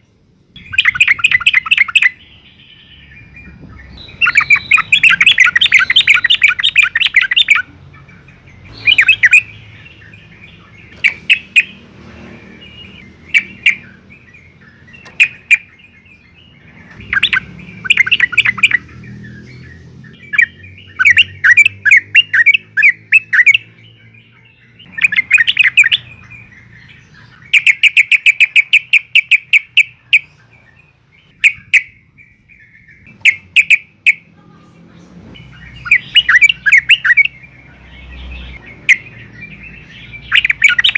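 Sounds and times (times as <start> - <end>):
bulbul bubbly chirping song: 0.6 - 11.8, 12.6 - 19.4, 20.1 - 23.8, 24.8 - 30.4, 35.4 - 37.5, 38.7 - 40.9.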